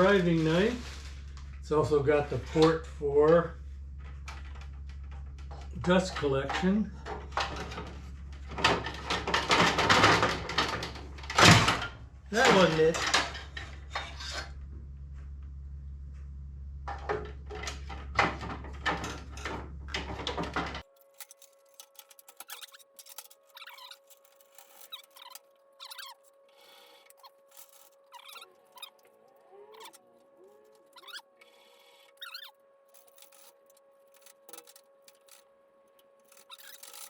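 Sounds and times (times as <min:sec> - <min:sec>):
low steady hum: 0:00.0 - 0:37.0
saw parts knocking and clicking: 0:16.9 - 0:29.1, 0:32.2 - 0:35.4
small clicks and squeaks: 0:17.5 - 0:37.0.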